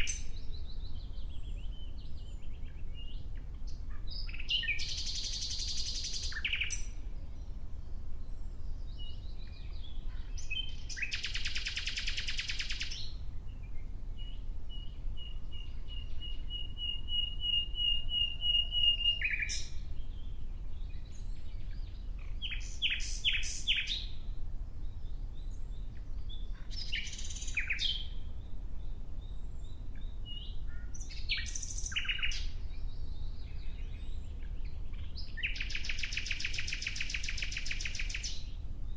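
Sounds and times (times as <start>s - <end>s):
nightingale singing: 0.0s - 38.9s.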